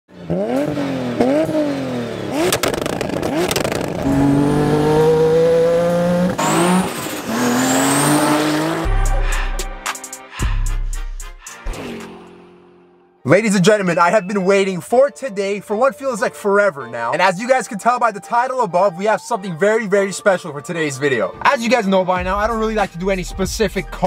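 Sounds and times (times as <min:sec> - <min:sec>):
car engine accelerating: 0:00.1 - 0:09.8
exhaust booms and cracks: 0:02.4 - 0:04.5.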